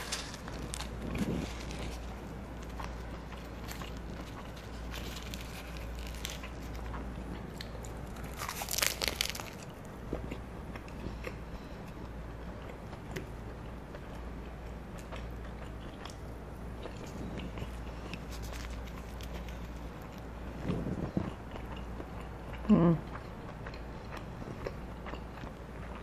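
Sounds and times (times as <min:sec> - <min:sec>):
loud crunching: 0:00.0 - 0:09.8
person chewing crispy food: 0:00.0 - 0:26.0.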